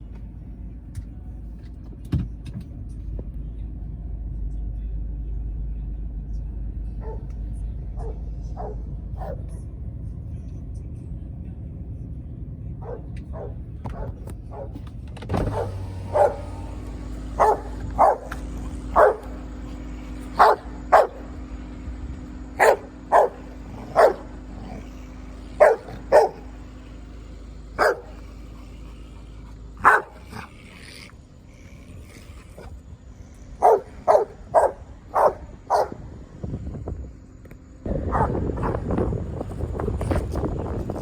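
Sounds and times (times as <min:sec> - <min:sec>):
low hum: 0:00.0 - 0:41.0
dog barking: 0:07.0 - 0:09.6, 0:12.8 - 0:14.8, 0:15.4 - 0:21.4, 0:22.6 - 0:27.1, 0:27.7 - 0:30.7, 0:33.6 - 0:36.0, 0:37.9 - 0:39.0.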